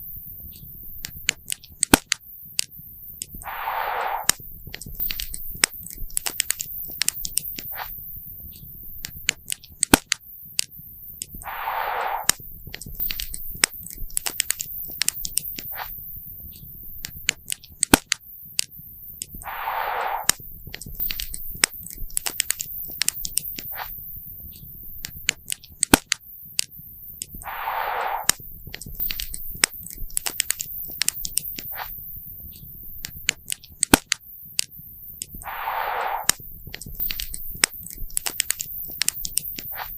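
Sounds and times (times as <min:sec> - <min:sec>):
short hiss: 0:03.4 - 0:04.4, 0:11.4 - 0:12.4, 0:19.4 - 0:20.4, 0:27.4 - 0:28.5, 0:35.4 - 0:38.0.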